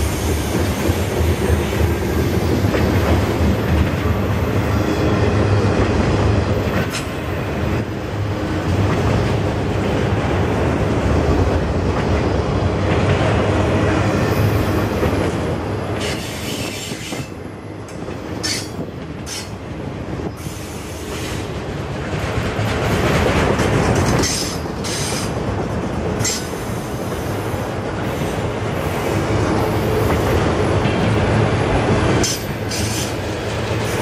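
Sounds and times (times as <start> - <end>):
train wheels rumbling and clacking: 0.0 - 34.0.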